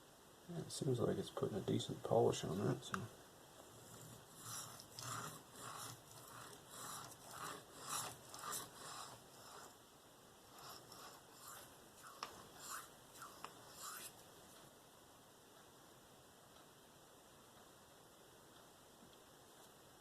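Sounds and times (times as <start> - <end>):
knife scraping on sharpening stone: 3.7 - 9.8, 10.5 - 14.2.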